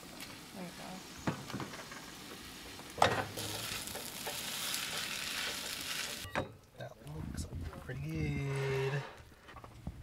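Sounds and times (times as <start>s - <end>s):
eggs and sausage sizzling: 0.0s - 6.4s.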